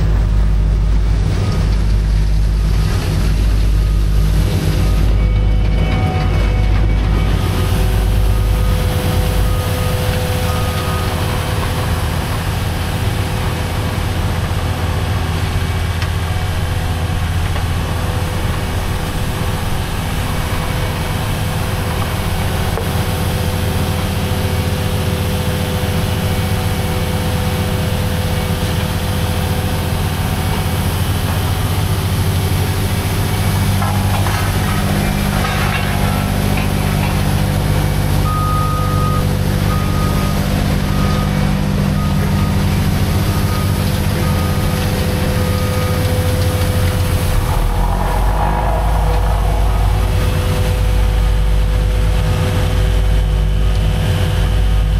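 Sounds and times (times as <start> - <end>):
diesel truck engine idling: 6.5 - 54.9.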